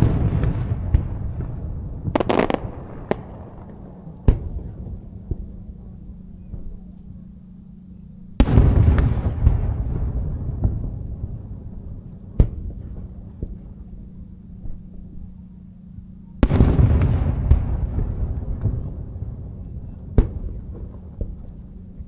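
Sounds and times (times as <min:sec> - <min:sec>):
fireworks crackle: 0:00.0 - 0:05.5
fireworks bangs: 0:00.0 - 0:05.6, 0:08.4 - 0:13.6, 0:16.4 - 0:21.5
fireworks boom and rumble: 0:00.0 - 0:07.3, 0:08.3 - 0:22.0.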